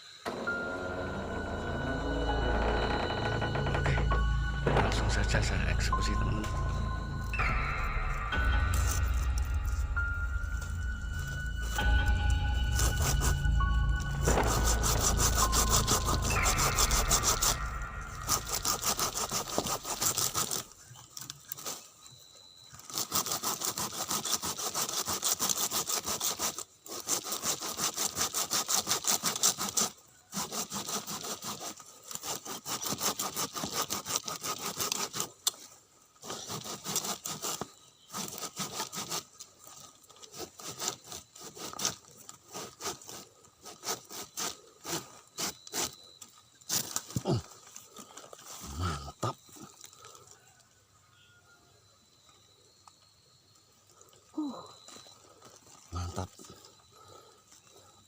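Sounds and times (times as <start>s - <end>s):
hand saw cutting bamboo: 12.6s - 20.8s, 22.9s - 47.4s.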